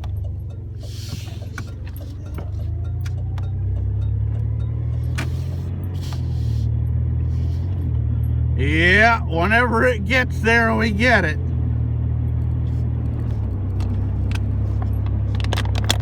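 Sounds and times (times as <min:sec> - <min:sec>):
truck engine and road drone: 0:00.0 - 0:16.0
small clicks and rattles: 0:13.7 - 0:16.0.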